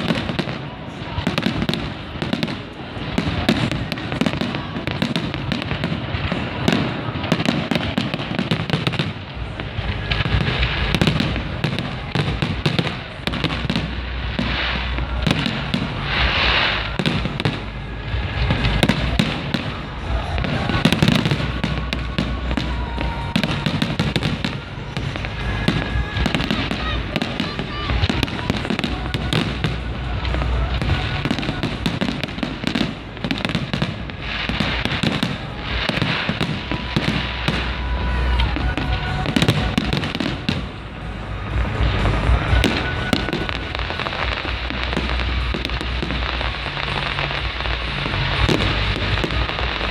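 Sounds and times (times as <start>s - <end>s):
fireworks bangs and crackling: 0.0s - 49.9s.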